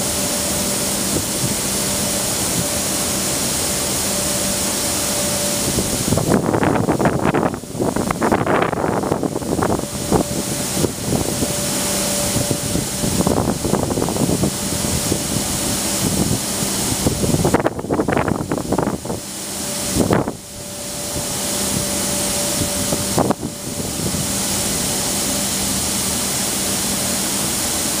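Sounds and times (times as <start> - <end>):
freight train rolling past: 0.0 - 28.0
wind buffeting microphone: 5.4 - 25.0.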